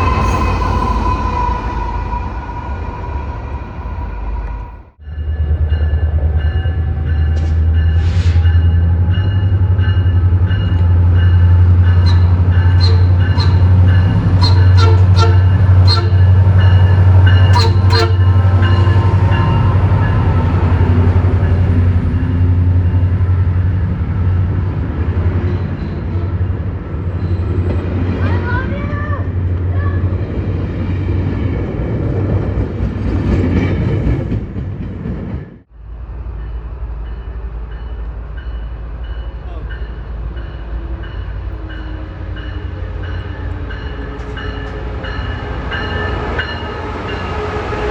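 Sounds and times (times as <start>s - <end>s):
train rumbling: 0.0s - 47.9s.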